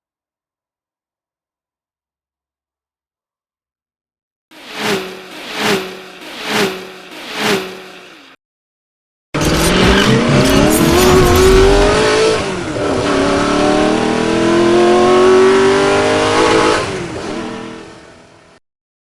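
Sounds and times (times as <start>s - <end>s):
car engine accelerating hard: 4.6s - 8.4s, 9.4s - 18.5s.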